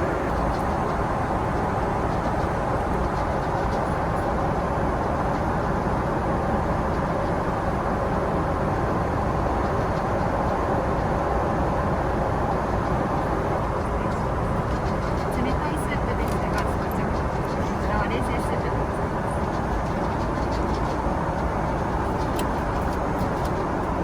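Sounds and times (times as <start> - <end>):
vehicle cabin rumble: 0.0 - 6.0, 12.5 - 24.0.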